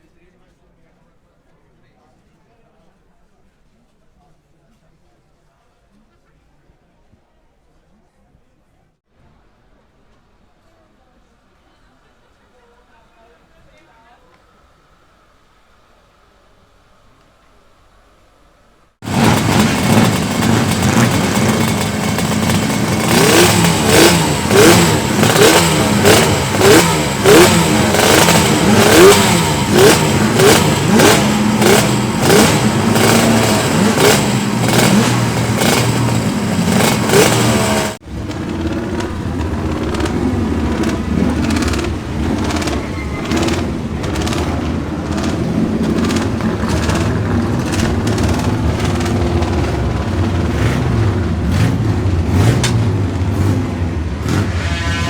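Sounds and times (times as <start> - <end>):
two-stroke motorcycle engine revving: 19.0 - 55.0.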